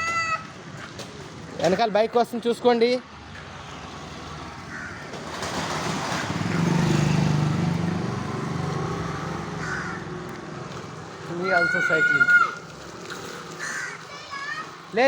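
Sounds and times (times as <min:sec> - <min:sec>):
motorcycle engine passing: 0:03.2 - 0:15.0.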